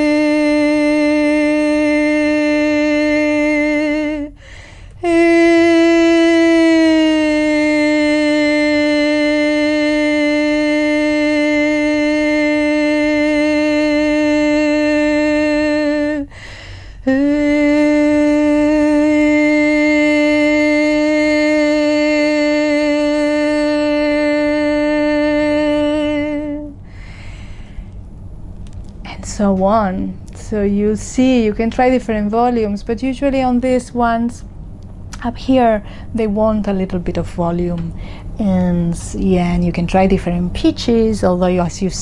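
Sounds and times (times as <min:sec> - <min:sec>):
woman toning sustained vowel: 0:00.0 - 0:27.8.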